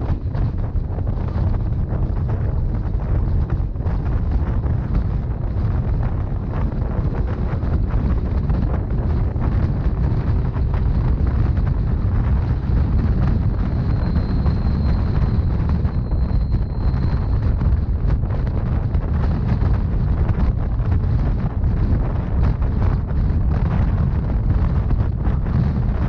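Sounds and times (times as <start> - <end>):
train rumbling: 0.0 - 26.0
wind on microphone: 0.0 - 26.0
faint high-pitched squeal: 13.6 - 17.9.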